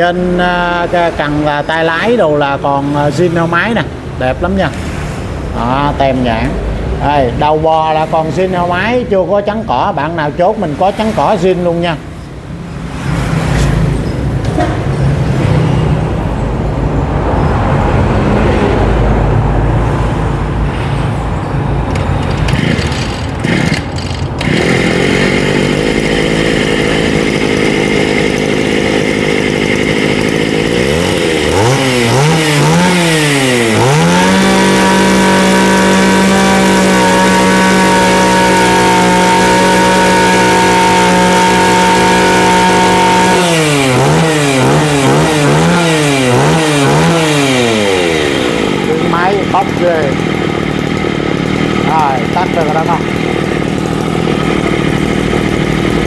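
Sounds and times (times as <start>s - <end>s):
brush cutter engine revving: 22.3s - 56.0s.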